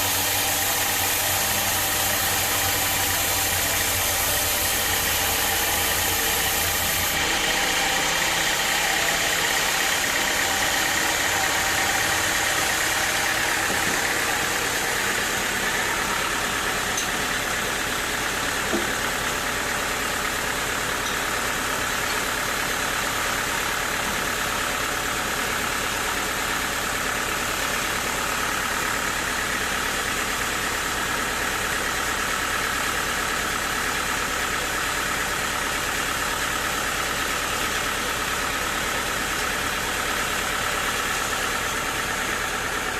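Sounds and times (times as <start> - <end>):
sawmill machinery drone: 0.0 - 42.9.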